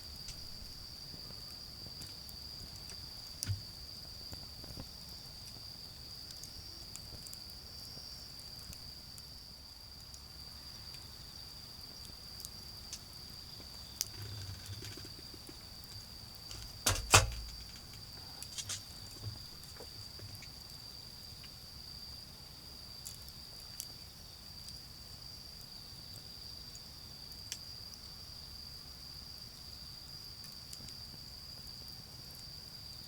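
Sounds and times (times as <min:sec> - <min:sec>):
charcoal fire crackling: 0:00.0 - 0:21.7
insects trilling: 0:00.0 - 0:33.0
loud sharp pop: 0:16.5 - 0:17.8.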